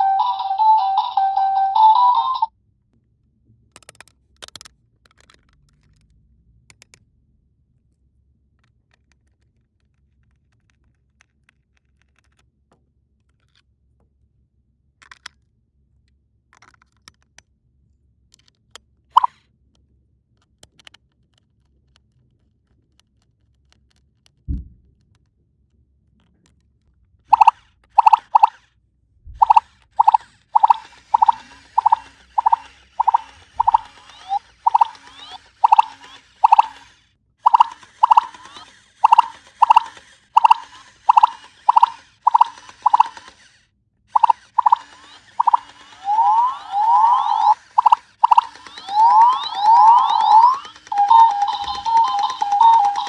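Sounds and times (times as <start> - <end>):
electronic phone ringtone: 0.0 - 2.5, 27.3 - 28.5, 29.4 - 36.8, 37.5 - 43.2, 44.2 - 53.0
plastic toy pieces clicking: 3.8 - 6.0, 27.3 - 28.6, 29.4 - 43.6, 44.2 - 53.0.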